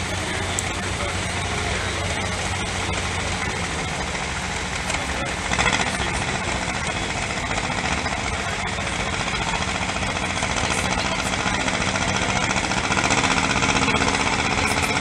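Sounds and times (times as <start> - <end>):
tractor engine running hard: 0.0 - 15.0.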